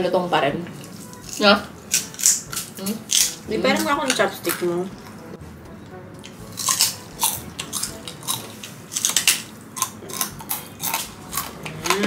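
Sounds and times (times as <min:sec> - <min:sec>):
crunchy food being chewed: 0:00.8 - 0:03.4, 0:06.5 - 0:12.0.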